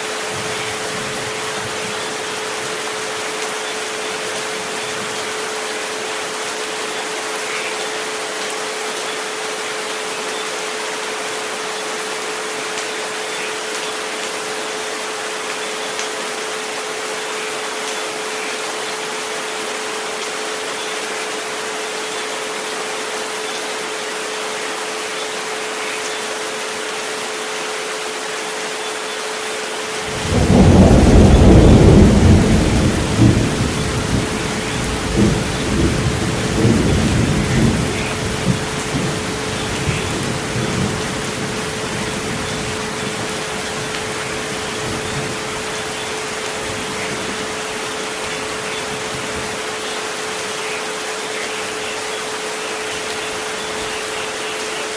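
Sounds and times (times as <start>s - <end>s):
steady rain: 0.0s - 54.9s
low rumble of thunder: 30.1s - 46.0s.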